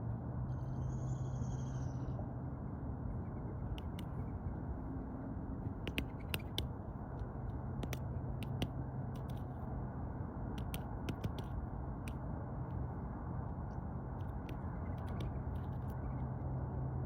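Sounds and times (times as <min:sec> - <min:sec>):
woodpecker pecking: 0:03.7 - 0:04.3, 0:05.7 - 0:09.6, 0:10.5 - 0:12.2, 0:14.1 - 0:16.1.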